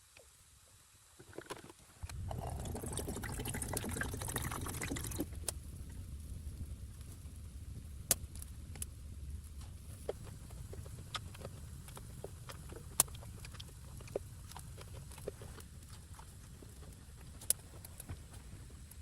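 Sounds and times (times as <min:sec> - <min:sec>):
steady low rumble: 0:02.0 - 0:19.0
liquid pouring: 0:02.1 - 0:05.4.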